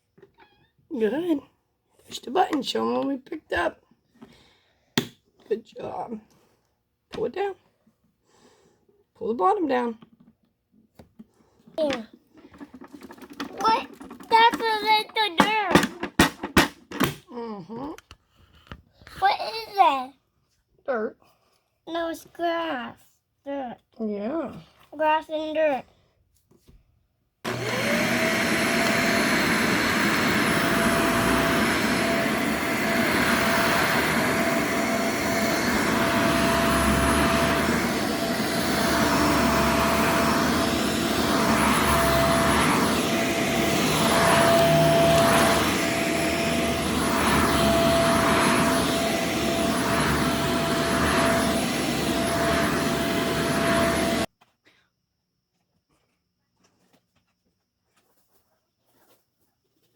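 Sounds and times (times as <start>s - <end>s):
vacuum cleaner motor whine: 27.5s - 54.3s.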